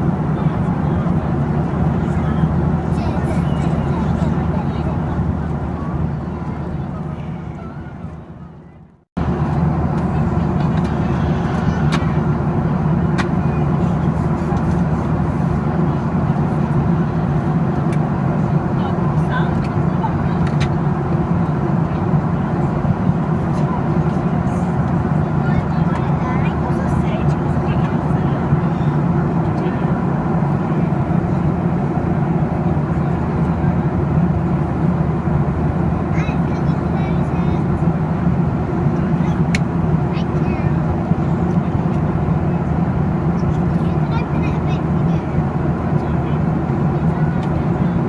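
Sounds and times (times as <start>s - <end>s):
airliner cabin engine rumble: 0.0s - 48.0s.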